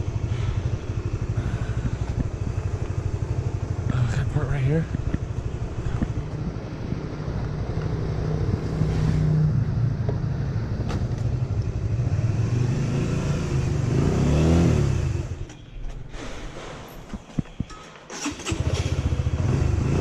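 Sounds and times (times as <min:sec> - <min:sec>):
motorbike engine running: 0:00.0 - 0:09.0.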